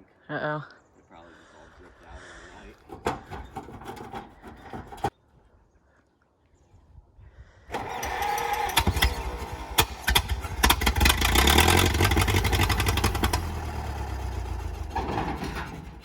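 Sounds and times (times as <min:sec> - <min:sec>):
tractor engine starting and running: 0:02.6 - 0:05.1, 0:07.7 - 0:16.0.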